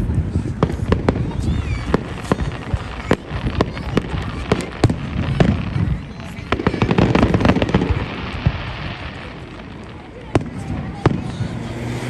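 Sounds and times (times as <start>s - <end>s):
fireworks exploding: 0.0s - 12.0s.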